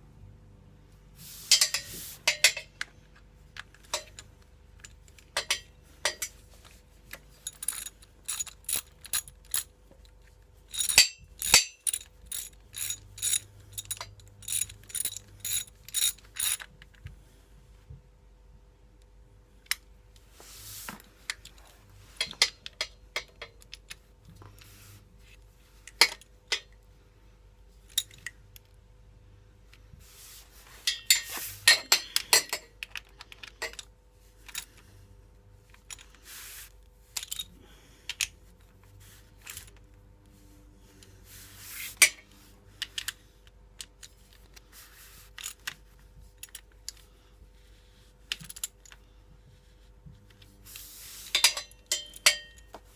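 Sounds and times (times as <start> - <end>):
metal tools and bolts clinking: 1.4 - 6.5, 7.1 - 17.0, 21.4 - 23.9, 25.9 - 26.8, 27.9 - 28.7, 30.7 - 34.9, 37.0 - 37.7, 41.9 - 43.2, 51.2 - 52.9.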